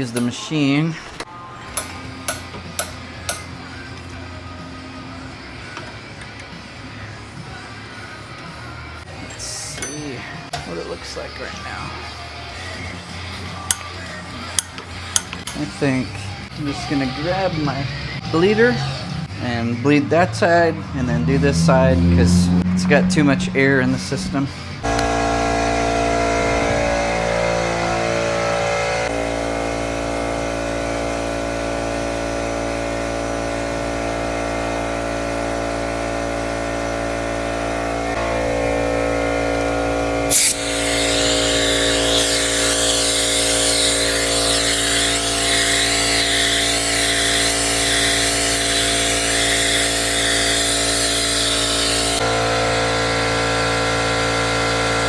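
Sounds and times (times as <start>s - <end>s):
air compressor running: 24.5s - 55.0s
loud air hiss: 40.3s - 52.2s.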